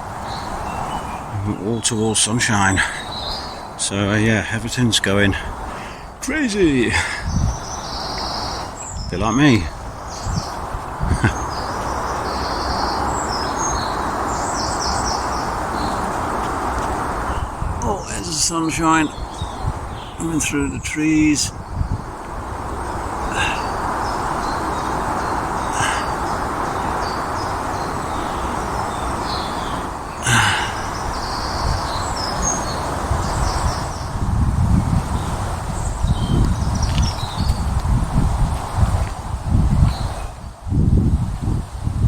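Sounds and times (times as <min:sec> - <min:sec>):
small birds chirping: 0:00.0 - 0:40.7
background hiss: 0:00.0 - 0:42.0
steady rushing noise: 0:00.0 - 0:42.0
footsteps on a path: 0:09.7 - 0:17.7, 0:36.2 - 0:39.3.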